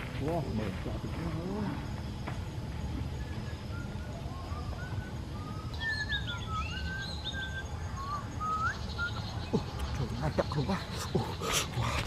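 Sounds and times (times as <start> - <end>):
low outdoor rumble: 0.0 - 12.0
birds whistling: 2.8 - 12.0
high bird chirps: 3.2 - 11.5.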